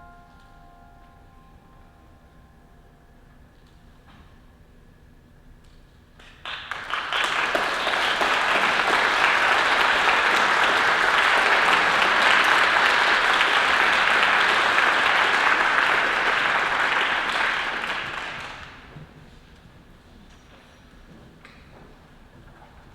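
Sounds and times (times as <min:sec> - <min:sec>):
audience applauding: 0:06.2 - 0:19.2.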